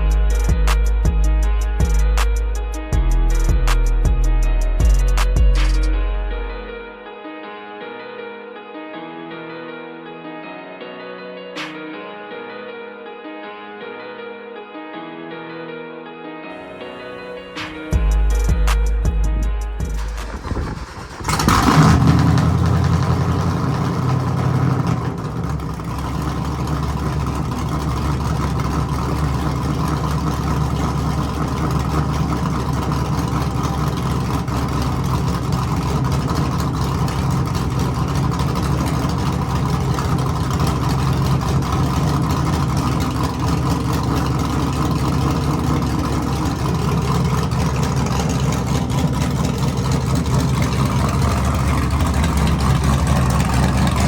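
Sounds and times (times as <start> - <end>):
car engine starting and idling: 17.6 - 54.0.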